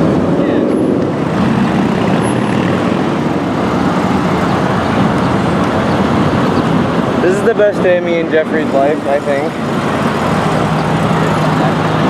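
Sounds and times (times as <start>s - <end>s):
car engine running loudly: 0.0s - 12.0s.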